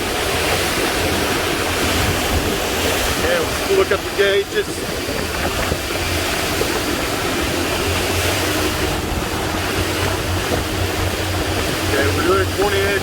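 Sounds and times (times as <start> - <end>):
boat diesel engines running: 0.0 - 13.0
water and wind rushing: 0.0 - 13.0.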